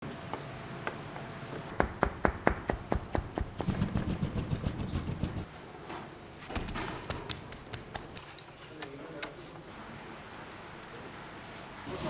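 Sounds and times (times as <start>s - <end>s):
rapid sharp knocks: 1.7s - 5.5s, 6.6s - 8.2s.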